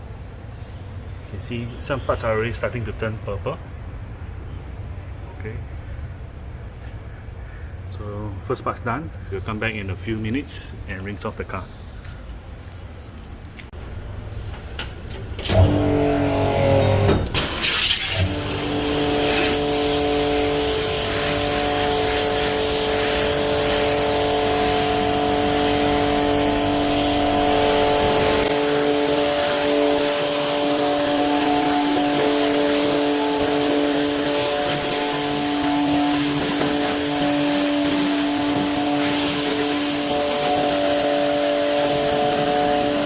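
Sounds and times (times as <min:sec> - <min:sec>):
pressure washer motor: 0:15.4 - 0:43.0
hiss of water spray: 0:17.4 - 0:43.0.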